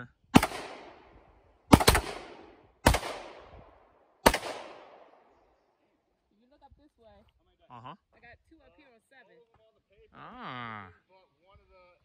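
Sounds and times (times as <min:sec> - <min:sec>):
gunshots with echo: 0:00.4 - 0:05.4.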